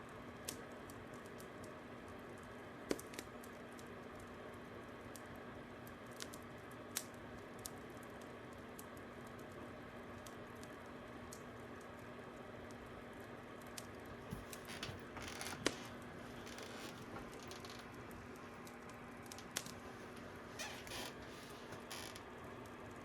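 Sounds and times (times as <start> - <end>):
fire crackling and popping: 0.3 - 23.0
low steady hum: 14.0 - 22.3.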